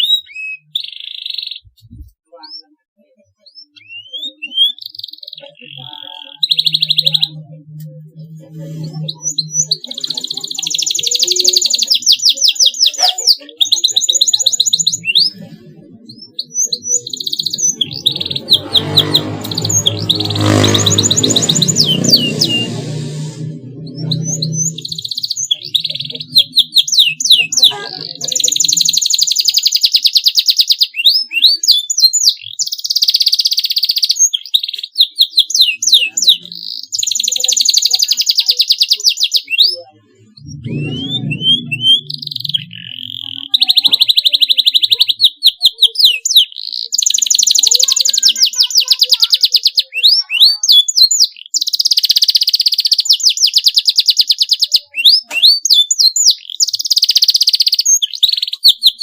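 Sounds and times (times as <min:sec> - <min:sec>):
canary singing: 0:00.0 - 0:59.0
low music: 0:17.6 - 0:26.8, 0:40.2 - 0:43.3.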